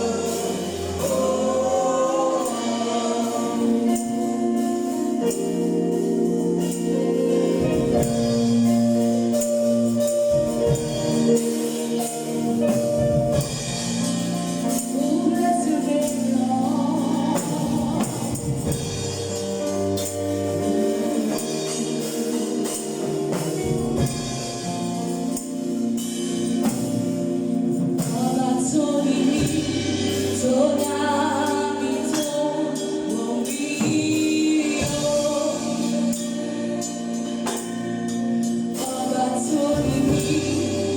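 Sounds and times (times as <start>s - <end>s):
choir singing: 0.0s - 8.1s, 20.7s - 25.0s
organ-like accompaniment: 0.0s - 40.9s.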